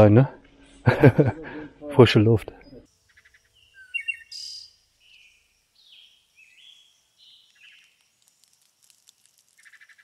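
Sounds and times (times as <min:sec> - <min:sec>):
faint whistled birdsong: 0:02.4 - 0:10.0.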